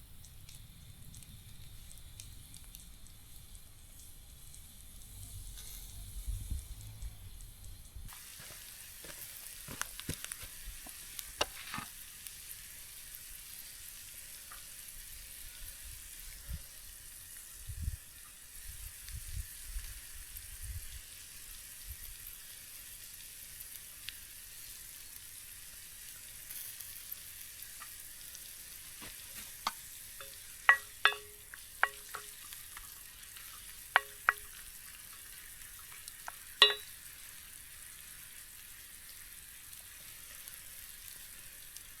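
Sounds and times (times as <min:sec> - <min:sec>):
hamburger sizzling in a pan: 0:00.0 - 0:42.0
metal utensil clinking on pan: 0:29.6 - 0:32.8, 0:34.0 - 0:34.6, 0:36.3 - 0:37.0.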